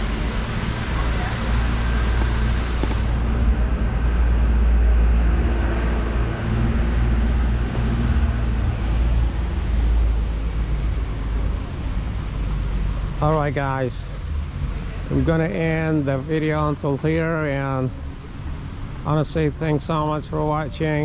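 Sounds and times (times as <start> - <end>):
thin high whine: 0.0 - 21.0
vehicle engines rumbling: 0.0 - 21.0.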